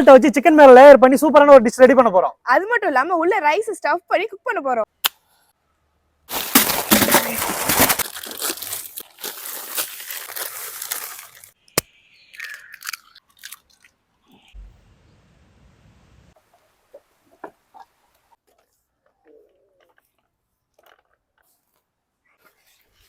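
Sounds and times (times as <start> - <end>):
coarse salt crunching: 6.3 - 14.0.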